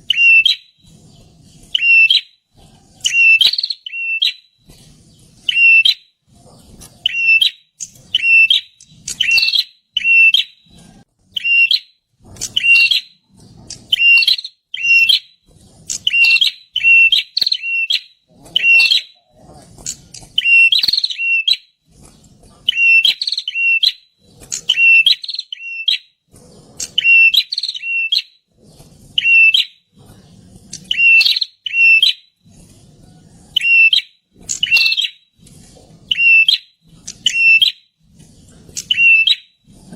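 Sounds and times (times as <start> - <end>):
bird sharp chirps: 0.0 - 2.4, 3.0 - 6.1, 6.8 - 21.7, 22.6 - 26.1, 26.7 - 28.4, 29.2 - 29.8, 30.7 - 32.3, 33.6 - 35.2, 36.1 - 37.8, 38.7 - 39.5.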